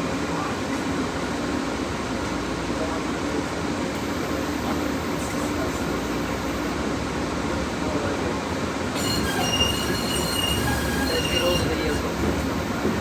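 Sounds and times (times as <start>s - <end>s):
rumble of wheels on rail: 0.0s - 13.0s
steel wheel squeal: 9.0s - 12.4s.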